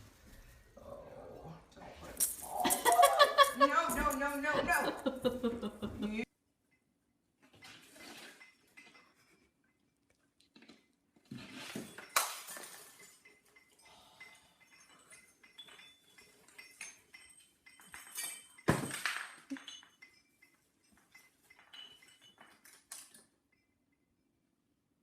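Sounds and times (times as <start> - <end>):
ornaments clinking and rattling: 2.0 - 6.2, 7.9 - 10.0, 11.4 - 24.1.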